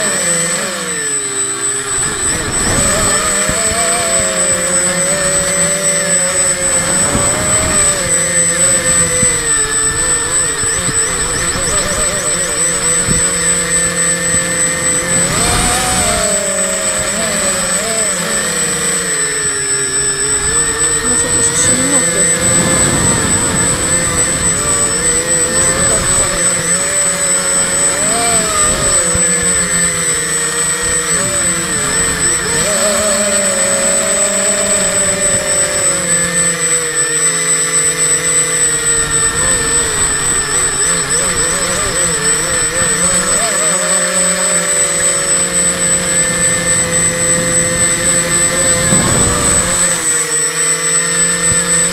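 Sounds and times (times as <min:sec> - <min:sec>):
drone motors whining: 0:00.0 - 0:51.9
wind rumbling on microphone: 0:01.8 - 0:18.0, 0:19.6 - 0:32.9, 0:45.6 - 0:50.3
steady high-pitched tone: 0:19.4 - 0:27.1.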